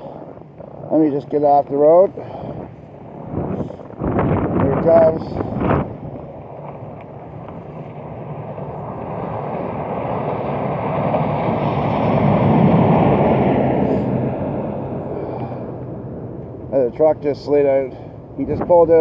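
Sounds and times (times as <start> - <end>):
wind on microphone: 0.0 - 17.1, 18.0 - 19.0
snowplow truck driving past: 5.2 - 17.0.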